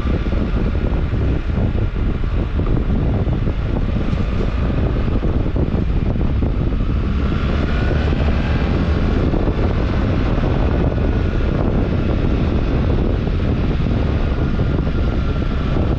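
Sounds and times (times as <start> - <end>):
motorcycle engine running: 0.0 - 15.9
wind noise on microphone: 0.0 - 15.9.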